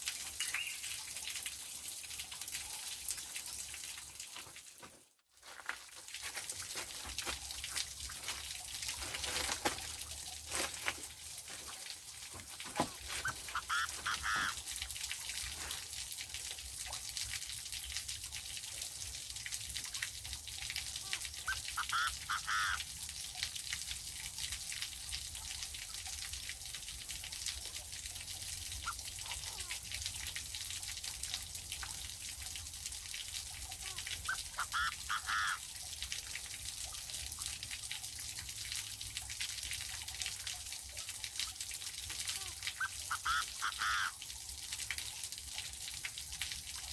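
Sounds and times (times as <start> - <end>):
irregular crackling and ticking: 4.2 - 17.4.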